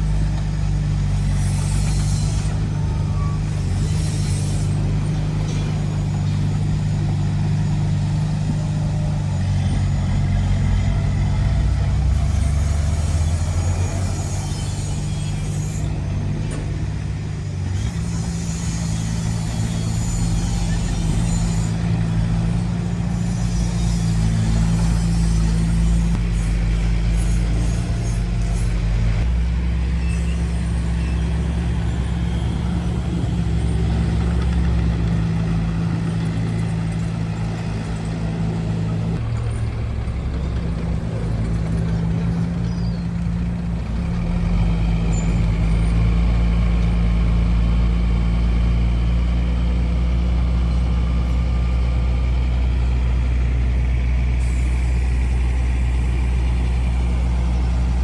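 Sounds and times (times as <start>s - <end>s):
construction machine diesel engine: 0.0s - 58.0s.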